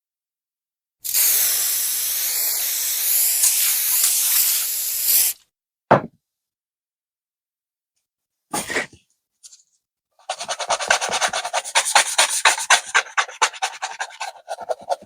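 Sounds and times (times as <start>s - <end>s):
spray can hissing: 1.1s - 5.4s, 10.3s - 15.0s.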